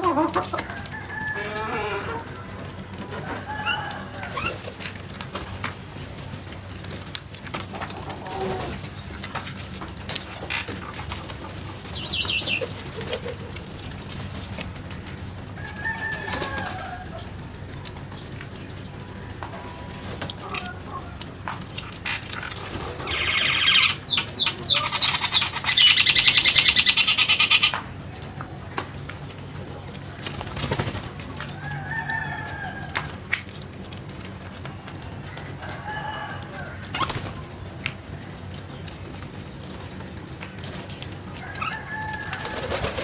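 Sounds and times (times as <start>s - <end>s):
birds calling: 0.0s - 43.0s
rapid buzzy chatter: 16.3s - 31.5s.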